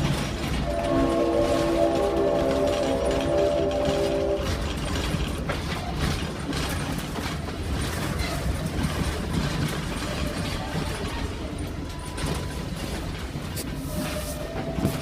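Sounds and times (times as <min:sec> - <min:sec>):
train cars rattling: 0:00.0 - 0:15.0
train rumbling: 0:00.0 - 0:15.0
wheels clicking on rails: 0:00.0 - 0:15.0
train horn chord: 0:00.6 - 0:04.7.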